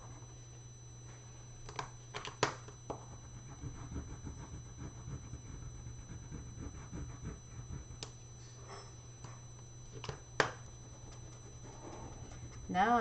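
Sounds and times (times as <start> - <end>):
steady low hum: 0.0 - 13.0
pencil scratching on paper: 3.0 - 8.1.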